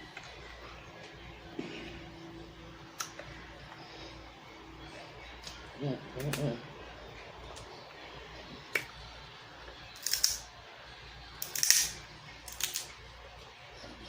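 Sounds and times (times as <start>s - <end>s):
crab shells cracking: 10.0s - 10.4s, 11.4s - 12.9s.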